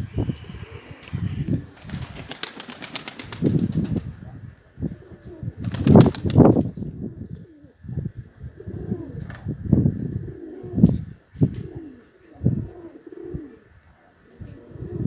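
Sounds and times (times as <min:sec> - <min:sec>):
pigeons cooing: 0:00.0 - 0:04.0, 0:08.5 - 0:15.0
pigeon wings flapping: 0:01.6 - 0:04.1, 0:05.6 - 0:06.6.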